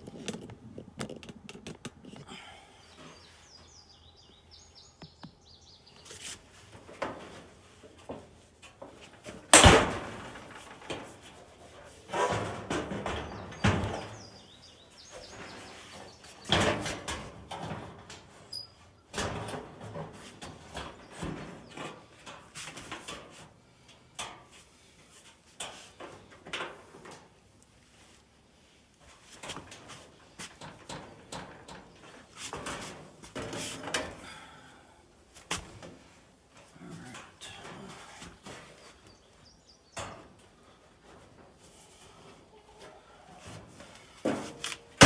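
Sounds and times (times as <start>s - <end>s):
sheet metal panels knocking and clanking: 6.8s - 11.4s, 12.1s - 14.4s.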